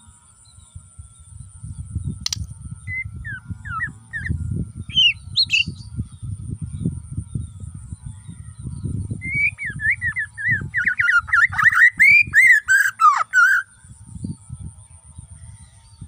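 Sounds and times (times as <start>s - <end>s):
bird singing varied whistles: 2.0s - 5.9s, 9.1s - 13.7s.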